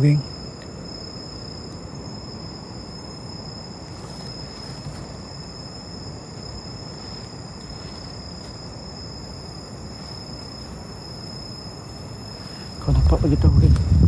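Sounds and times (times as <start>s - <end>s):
faint high hiss: 0.0s - 14.0s
steady background noise: 0.0s - 14.0s.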